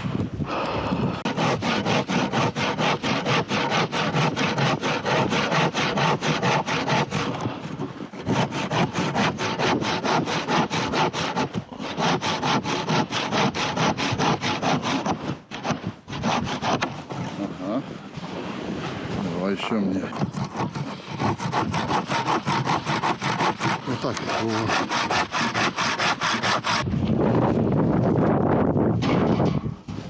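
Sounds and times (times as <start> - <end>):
hand saw cutting wood: 1.2 - 17.6, 20.1 - 26.9.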